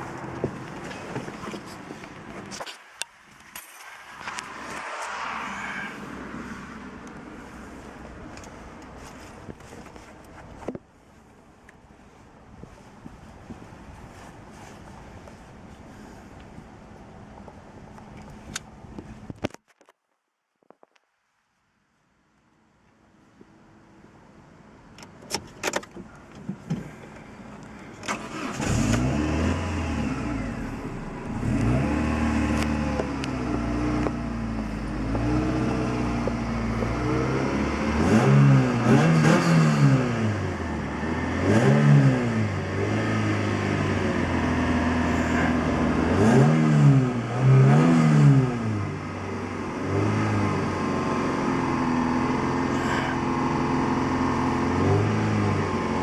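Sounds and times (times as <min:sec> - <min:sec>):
car engine starting and revving: 0:27.9 - 0:56.0.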